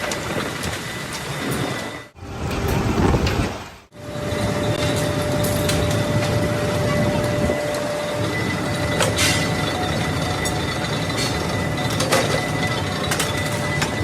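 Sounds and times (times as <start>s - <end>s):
factory machinery running: 0.0s - 14.0s
steady machine whine: 3.9s - 14.0s.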